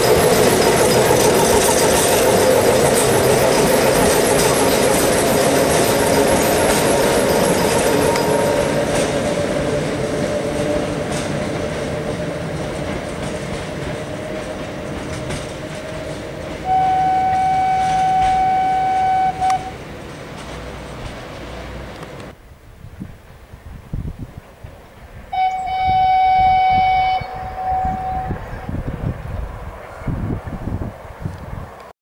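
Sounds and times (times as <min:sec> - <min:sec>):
electric railcar running with whine: 0:00.0 - 0:31.9
train horn blast: 0:16.6 - 0:19.8, 0:25.3 - 0:28.8.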